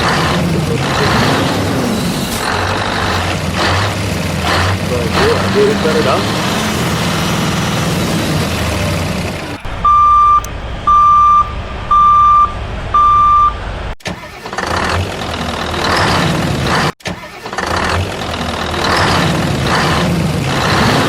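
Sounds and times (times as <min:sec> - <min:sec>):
low engine rumble: 0:00.0 - 0:16.9
heavy vehicle engine pulsing: 0:00.0 - 0:21.0
vehicle reversing alarm beeping: 0:09.4 - 0:13.6.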